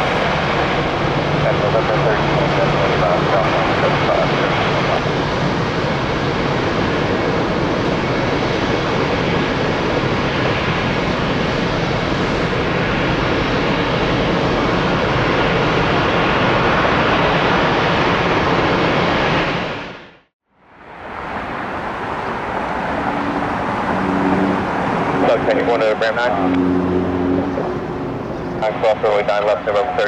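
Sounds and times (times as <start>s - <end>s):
jet airliner engines rushing: 0.0s - 30.0s.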